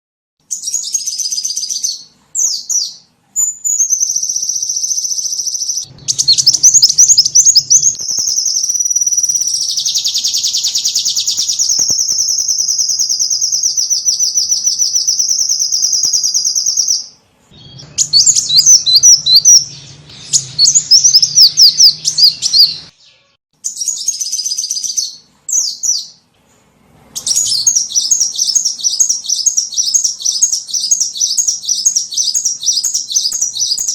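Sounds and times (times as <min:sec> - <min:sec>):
bird lure call chirps and trills: 0:03.7 - 0:22.9.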